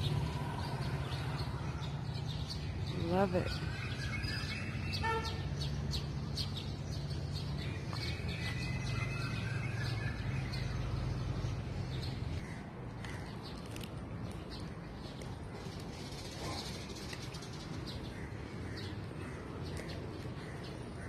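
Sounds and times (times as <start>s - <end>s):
birds chirping and whistling: 0.0s - 12.4s.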